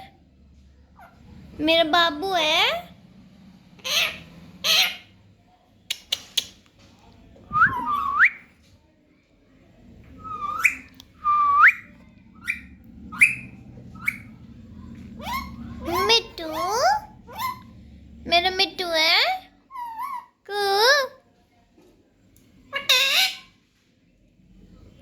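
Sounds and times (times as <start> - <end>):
parrot chirps: 3.8 - 5.1, 10.2 - 11.0, 11.6 - 14.4, 15.2 - 17.7, 22.7 - 23.6
parrot squawking: 3.8 - 5.1, 10.3 - 11.0, 11.6 - 14.4, 15.1 - 17.8, 19.7 - 20.4, 22.7 - 23.6
parrot whistled calls: 7.6 - 8.5, 10.2 - 14.3.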